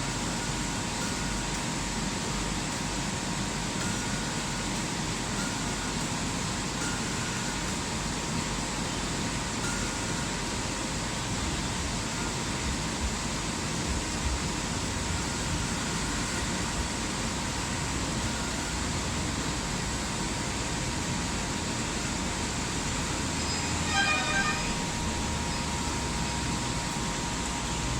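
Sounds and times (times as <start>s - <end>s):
laser cutting machine running: 0.0s - 27.9s
faint high steady tone: 23.0s - 26.7s.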